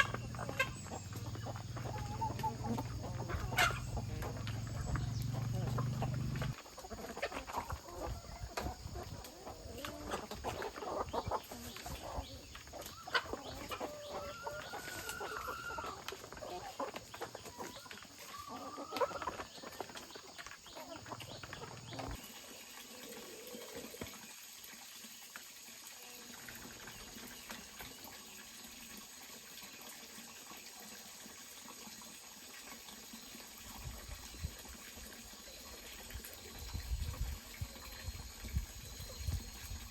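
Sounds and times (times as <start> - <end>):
chickens clucking: 0.0 - 24.2.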